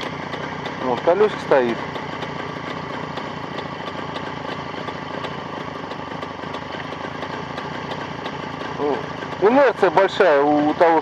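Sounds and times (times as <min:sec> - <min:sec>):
two-stroke engine idling: 0:00.0 - 0:11.0.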